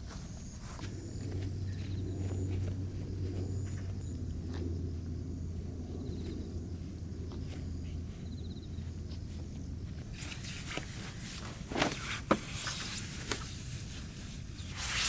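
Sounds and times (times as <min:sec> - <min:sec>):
low steady rumble: 0:00.0 - 0:10.7.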